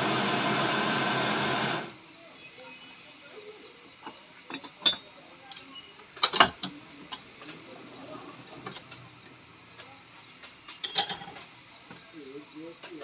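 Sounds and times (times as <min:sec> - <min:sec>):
metal tools clicking and knocking: 0:04.0 - 0:07.6, 0:09.8 - 0:12.1.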